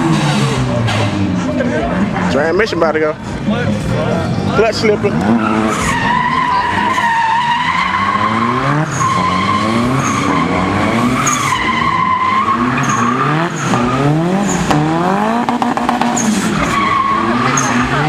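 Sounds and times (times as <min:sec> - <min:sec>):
car engine revving: 0:00.0 - 0:18.0
tyres squealing: 0:04.8 - 0:14.8.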